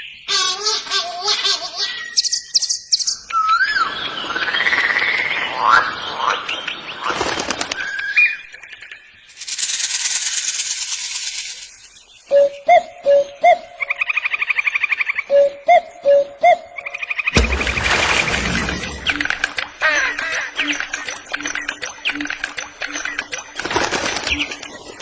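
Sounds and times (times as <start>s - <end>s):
bird calls and whistles: 0.0s - 9.8s, 11.4s - 17.4s.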